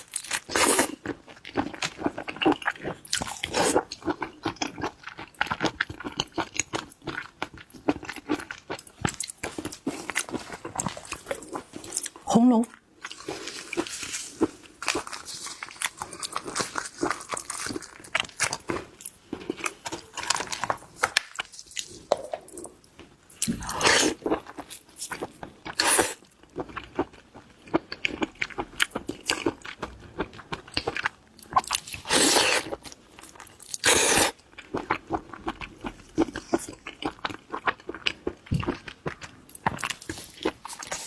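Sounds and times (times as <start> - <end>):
lobster shell crunches: 13.1 - 22.7.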